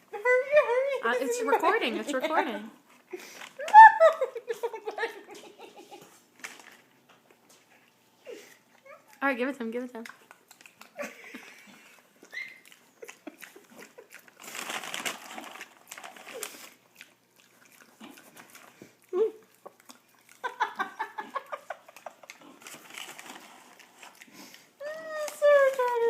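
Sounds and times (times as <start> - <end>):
dog chewing: 10.0 - 26.0
rustling: 14.2 - 16.8, 22.4 - 24.6.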